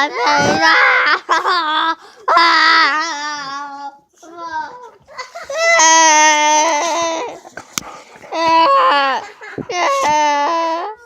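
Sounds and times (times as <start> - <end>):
child wailing: 0.0 - 1.2, 8.3 - 11.0.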